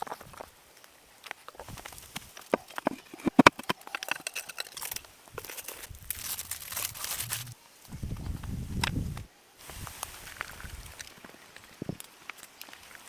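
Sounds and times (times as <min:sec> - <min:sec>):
crunching and crackling: 0:00.0 - 0:07.6, 0:10.1 - 0:13.0
rough rushing noise: 0:05.9 - 0:07.6
low rumble: 0:05.9 - 0:08.5.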